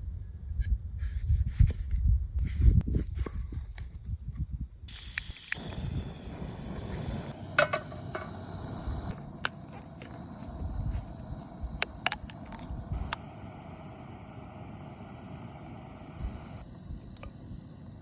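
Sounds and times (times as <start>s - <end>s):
insects chirping: 4.9s - 18.0s.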